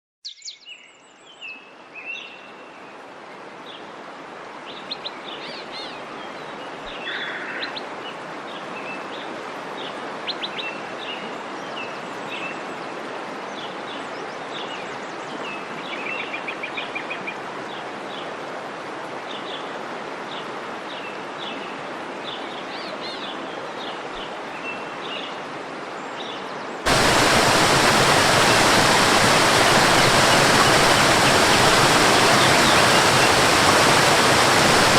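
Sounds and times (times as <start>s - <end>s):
rushing waterfall: 1.8s - 34.9s
birds chirping: 26.9s - 34.9s.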